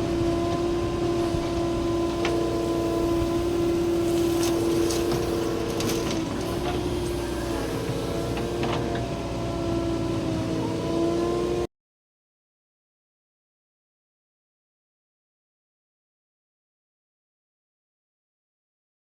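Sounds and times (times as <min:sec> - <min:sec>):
diesel engine droning: 0:00.0 - 0:11.7.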